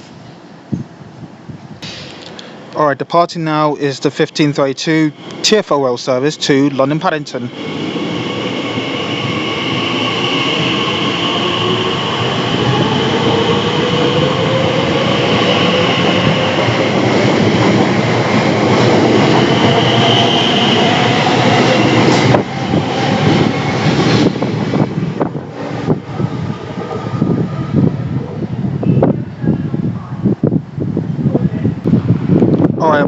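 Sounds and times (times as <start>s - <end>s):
electric train traction whine: 4.4s - 28.1s.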